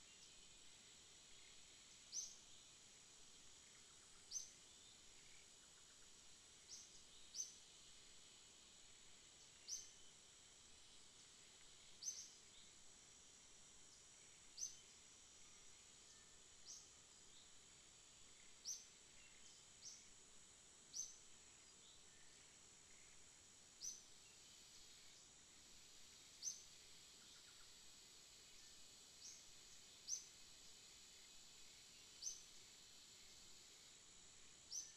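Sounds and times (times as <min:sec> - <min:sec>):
faint high whine: 0:00.0 - 0:34.9
bird chirping: 0:26.3 - 0:27.8.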